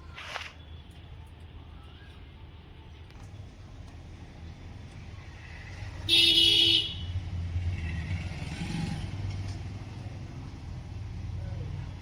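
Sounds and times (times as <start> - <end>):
passing road traffic rumble: 3.2 - 12.0
two-tone vehicle horn: 6.1 - 7.1.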